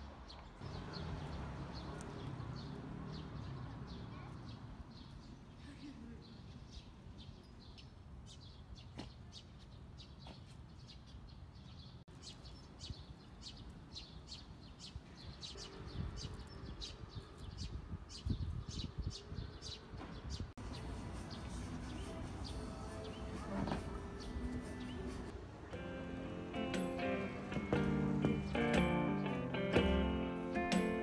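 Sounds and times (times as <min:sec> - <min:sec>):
small birds chirping: 0:00.1 - 0:31.0.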